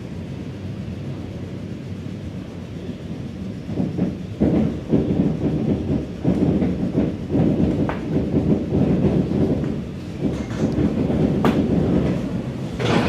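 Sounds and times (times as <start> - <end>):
train rumble: 0.0 - 13.0
wheel thumps over rail joints: 3.9 - 13.0.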